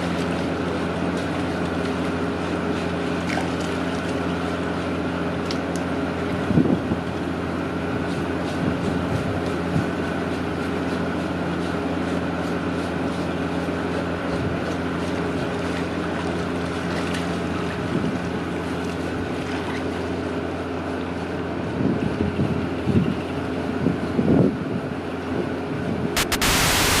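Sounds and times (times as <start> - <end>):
wind noise on microphone: 6.4 - 7.1, 23.8 - 27.0
motor drone: 26.2 - 27.0.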